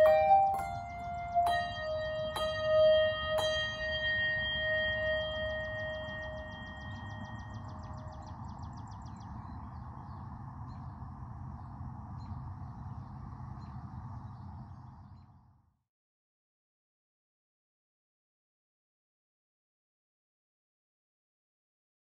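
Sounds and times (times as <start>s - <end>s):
bell-like music: 0.0s - 9.0s
steady background rush: 0.0s - 14.5s
birds chirping: 0.0s - 15.4s.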